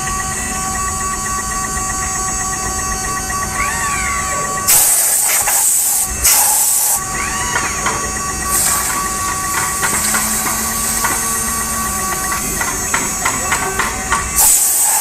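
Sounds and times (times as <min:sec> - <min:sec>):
router machine whine and hum: 0:00.0 - 0:15.0
loud high hissing bursts: 0:03.5 - 0:15.0.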